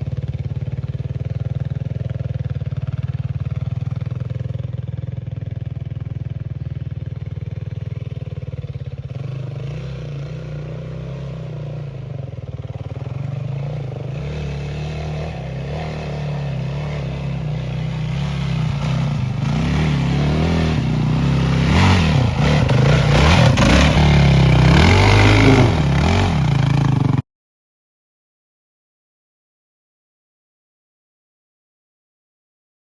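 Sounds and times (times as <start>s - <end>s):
dirt bike engine revving: 7.8s - 27.2s.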